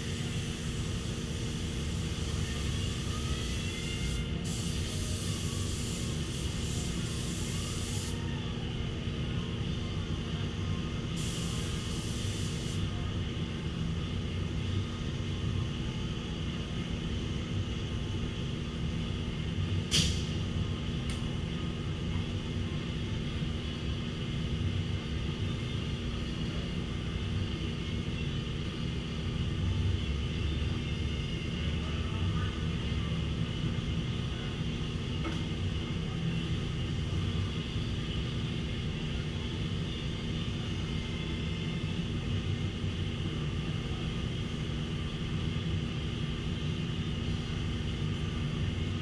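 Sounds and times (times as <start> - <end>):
sharp click: 19.9 - 20.3
short hiss: 19.9 - 20.4.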